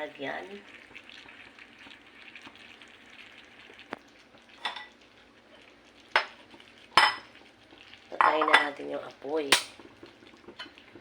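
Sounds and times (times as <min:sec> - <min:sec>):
meat sizzling in a pan: 0:00.0 - 0:11.0
metal utensil clinking on pan: 0:08.2 - 0:08.8.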